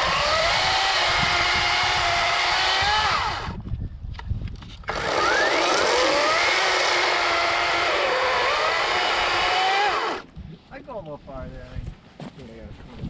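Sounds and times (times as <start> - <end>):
electric chainsaw whining: 0.0 - 3.6, 4.9 - 10.3.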